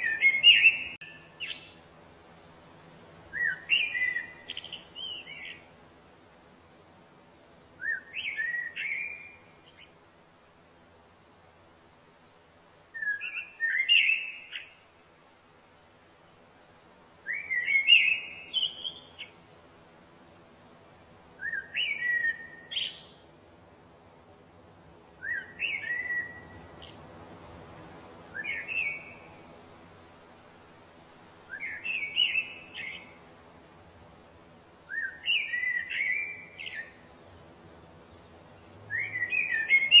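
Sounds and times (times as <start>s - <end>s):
songbird chirping and whistling: 0.0s - 1.8s, 3.3s - 5.7s, 7.8s - 9.9s, 10.9s - 14.9s, 17.2s - 20.2s, 21.4s - 23.3s, 25.2s - 27.0s, 28.3s - 29.6s, 31.3s - 33.2s, 34.9s - 37.9s, 38.9s - 40.0s.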